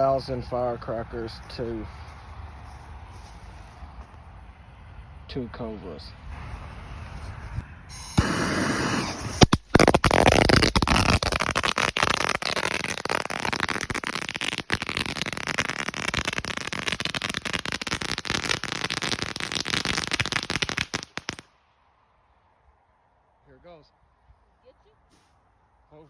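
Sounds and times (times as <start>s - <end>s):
firecrackers crackling: 7.9s - 21.5s.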